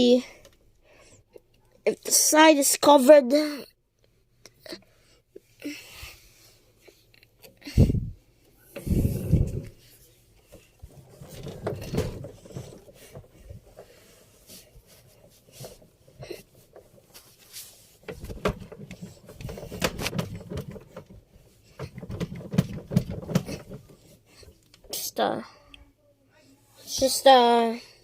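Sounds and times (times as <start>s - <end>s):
belt and pulley rubbing and knocking: 8.7s - 24.6s.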